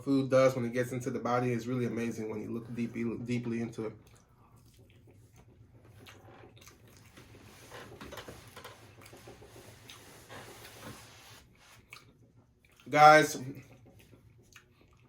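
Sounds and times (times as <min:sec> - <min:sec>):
person chewing food: 0:04.0 - 0:10.0, 0:11.7 - 0:12.9, 0:13.6 - 0:15.0.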